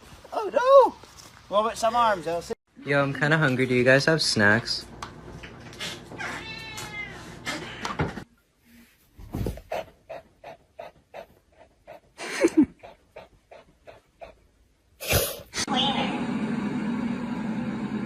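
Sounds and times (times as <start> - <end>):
cat meowing: 6.2 - 8.0.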